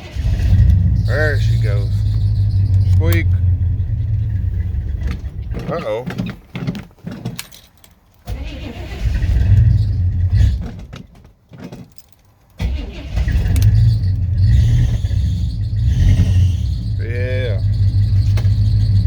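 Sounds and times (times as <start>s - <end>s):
car engine cranking and starting: 0.0s - 19.0s.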